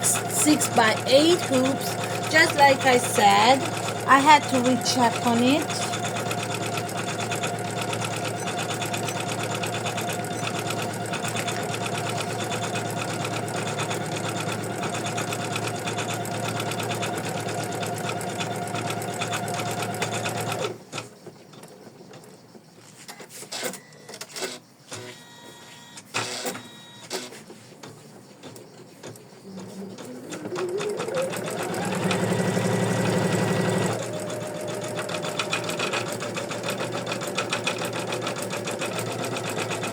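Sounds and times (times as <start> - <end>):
embroidery machine stitching: 0.0 - 20.8, 28.5 - 39.9
machine whine: 28.6 - 39.9.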